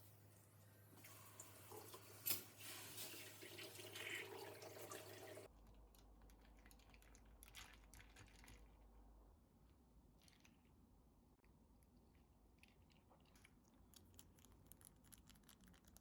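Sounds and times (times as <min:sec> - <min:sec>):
tap water running into sink: 0:01.0 - 0:05.5.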